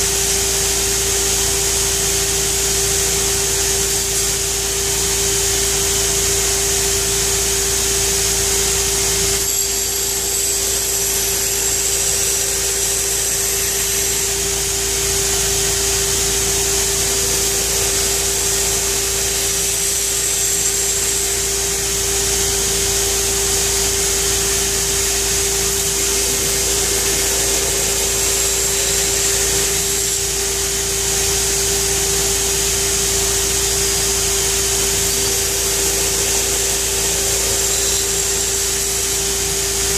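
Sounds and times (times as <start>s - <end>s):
belt grinder motor hum: 0.0s - 39.9s
belt grinding steel blade: 8.3s - 39.9s.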